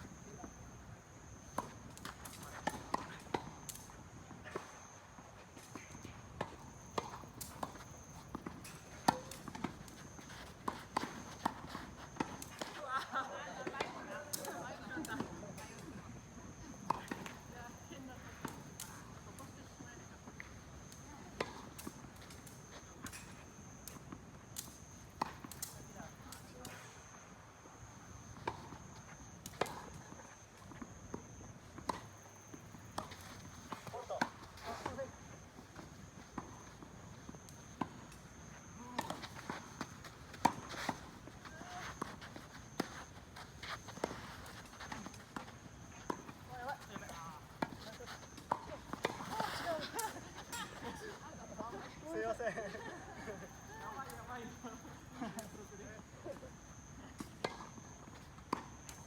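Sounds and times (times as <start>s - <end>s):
tennis balls bouncing on court: 5.7s - 16.0s, 16.7s - 19.4s, 30.6s - 54.6s, 57.2s - 59.0s
tennis ball bouncing on court: 43.6s - 50.2s.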